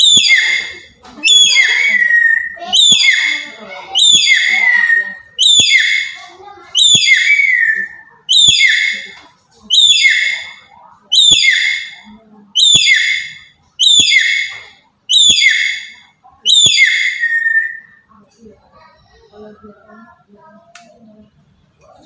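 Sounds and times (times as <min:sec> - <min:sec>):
parrot harsh calls: 0:00.0 - 0:09.1, 0:09.7 - 0:12.0, 0:12.6 - 0:18.0.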